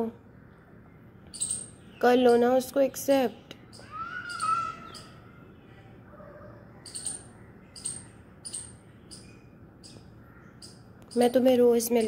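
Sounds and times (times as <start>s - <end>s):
small birds chirping: 0.0s - 12.0s
high rising bird call: 3.7s - 11.4s.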